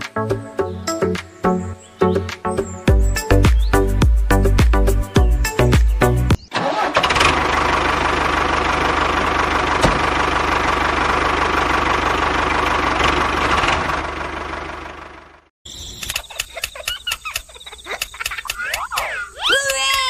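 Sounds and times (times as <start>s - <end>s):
music: 0.0s - 6.4s
engine starting and running: 6.4s - 16.4s.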